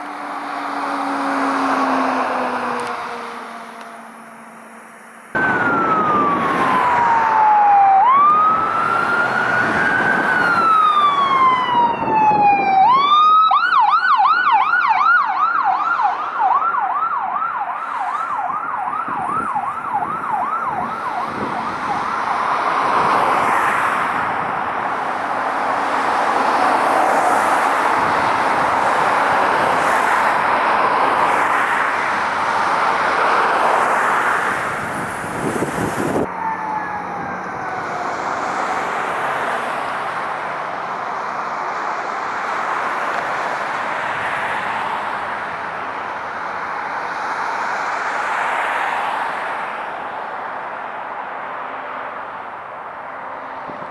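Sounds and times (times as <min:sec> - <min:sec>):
road and traffic noise: 0:00.0 - 0:53.9
electronic siren wailing and yelping: 0:05.4 - 0:23.2, 0:36.2 - 0:38.9.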